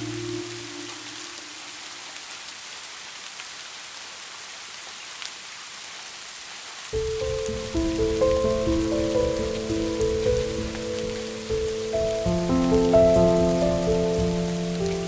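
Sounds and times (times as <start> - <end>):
piano music: 0.0 - 1.6, 7.0 - 15.0
steady rain falling: 0.0 - 15.0
rain drop ticks: 6.9 - 15.0.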